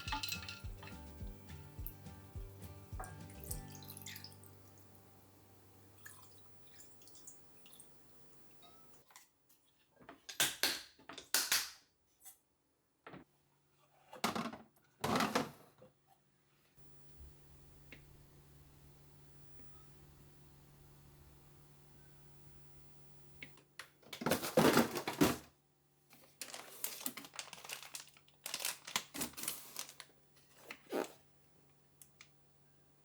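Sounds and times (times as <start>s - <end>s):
kitchen clinks: 0.0s - 4.5s
water splashing in spurts: 0.0s - 8.2s.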